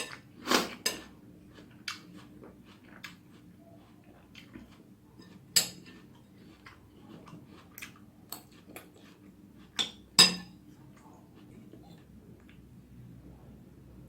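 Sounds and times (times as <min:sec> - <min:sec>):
utensil clinking on a plate: 0:09.8 - 0:10.6.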